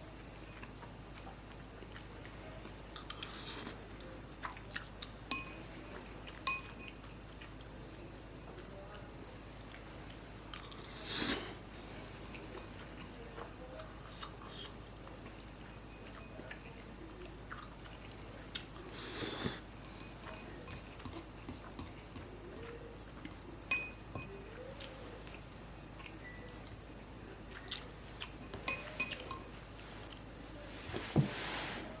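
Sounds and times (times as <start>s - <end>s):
person chewing noodles: 4.4s - 5.2s, 17.4s - 20.1s, 27.5s - 28.5s
utensils clinking against bowl: 5.0s - 5.7s, 6.4s - 7.1s, 19.1s - 24.9s, 28.3s - 30.2s.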